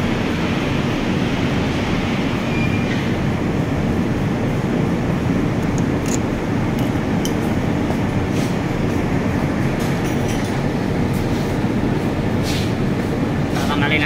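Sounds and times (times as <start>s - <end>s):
faint metallic clinks: 5.7s - 7.6s.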